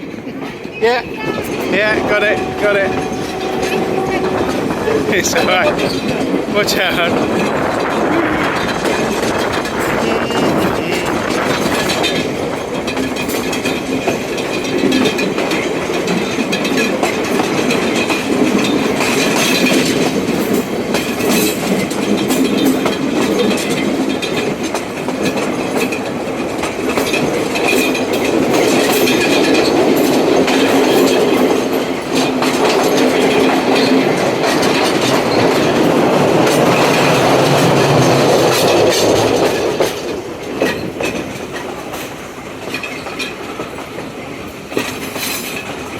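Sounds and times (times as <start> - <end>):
train rumbling on rails: 0.0 - 45.9
wheels clacking over rail joints: 0.0 - 45.9.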